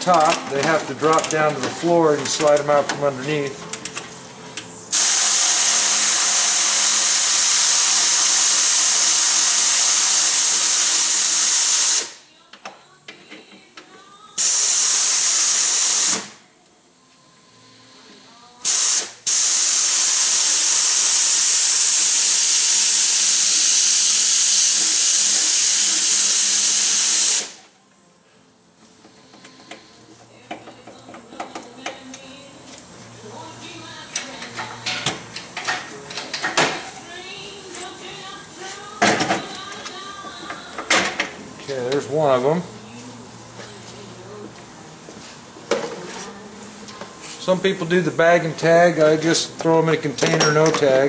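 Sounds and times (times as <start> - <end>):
pneumatic tool hissing: 4.9 - 12.2, 14.4 - 16.4, 18.6 - 27.6.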